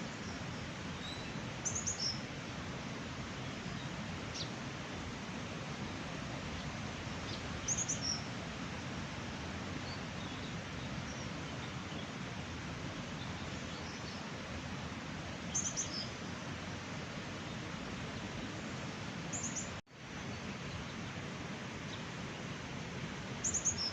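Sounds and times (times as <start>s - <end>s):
small birds chirping: 1.0s - 2.2s, 6.6s - 8.3s, 15.5s - 16.2s, 23.4s - 23.9s.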